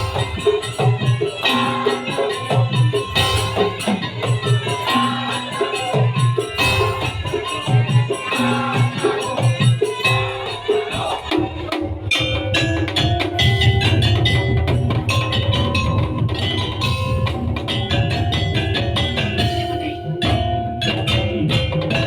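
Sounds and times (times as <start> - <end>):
wooden and metal percussion strikes: 0.0 - 22.0
low drums: 6.0 - 22.0.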